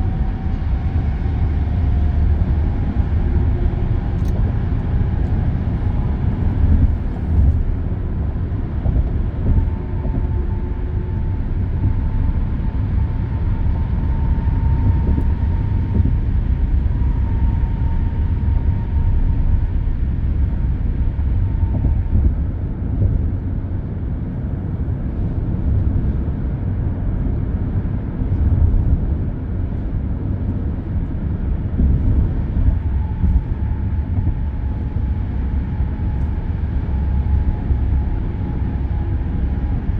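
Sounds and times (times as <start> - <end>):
traffic rumble and tyres on road: 0.0 - 39.9.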